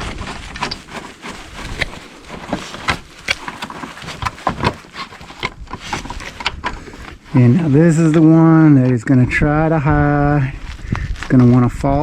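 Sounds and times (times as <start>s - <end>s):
hand tools clicking and knocking: 0.5s - 7.2s.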